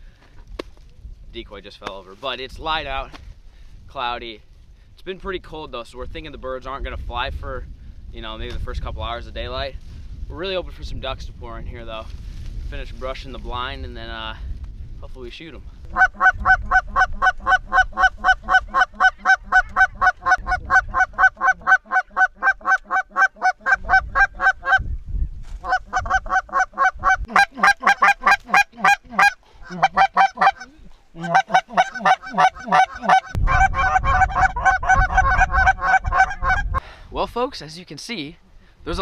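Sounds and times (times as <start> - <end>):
low wind rumble: 0.0 - 39.0
goose honking: 15.9 - 24.8, 25.6 - 36.8.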